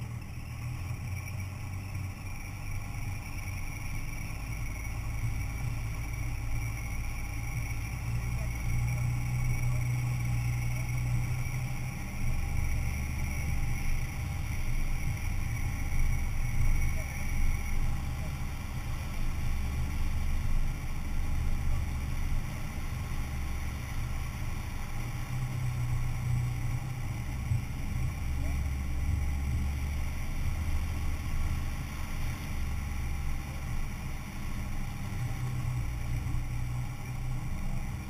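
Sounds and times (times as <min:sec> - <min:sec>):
suv engine idling low: 0:00.0 - 0:38.0.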